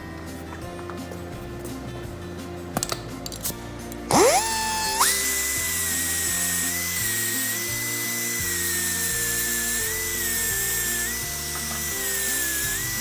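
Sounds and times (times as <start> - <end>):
background music: 0.0 - 13.0
rotary tool high-pitched whine: 4.1 - 13.0.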